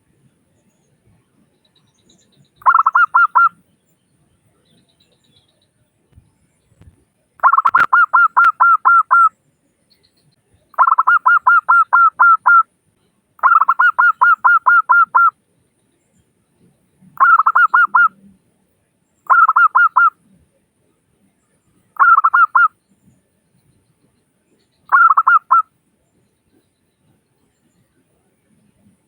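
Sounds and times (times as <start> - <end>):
dove cooing rapidly: 2.6 - 3.5, 7.4 - 9.3, 10.8 - 12.6, 13.4 - 15.3, 17.2 - 18.2, 19.3 - 20.1, 22.0 - 22.7, 24.9 - 25.6.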